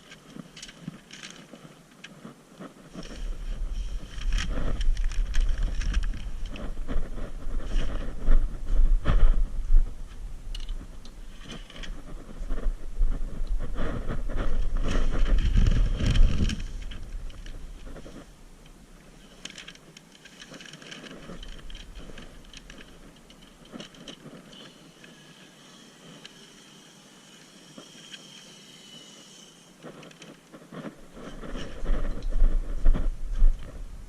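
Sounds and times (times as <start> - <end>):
low rumble: 3.0 - 18.6.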